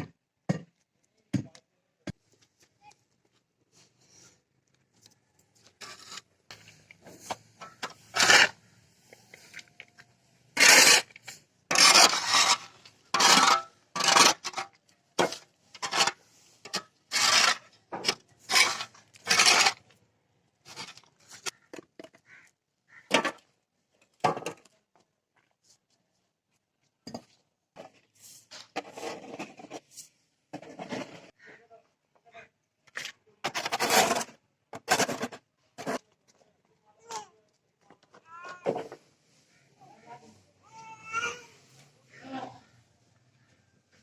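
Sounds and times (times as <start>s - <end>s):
scraping strokes: 5.7s - 9.7s, 10.5s - 20.0s.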